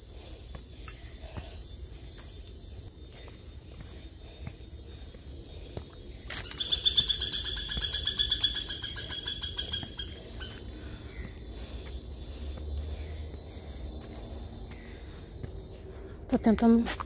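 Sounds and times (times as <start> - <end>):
bird trilling: 6.4 - 10.6.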